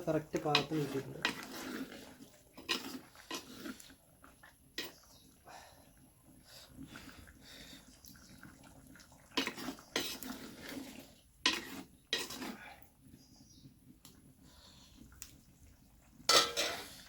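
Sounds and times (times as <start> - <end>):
metal spoon scraping clay pot: 0.0 - 4.0, 4.7 - 5.2, 9.3 - 12.7, 16.3 - 17.0.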